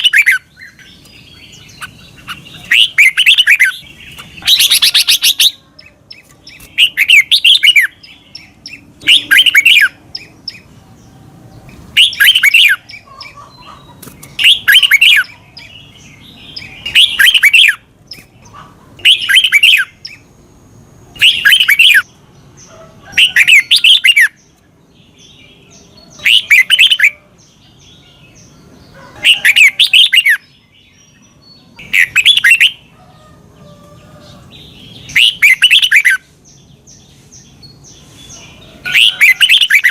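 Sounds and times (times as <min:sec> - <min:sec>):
bulbul singing warbled phrase: 0:00.0 - 0:10.7.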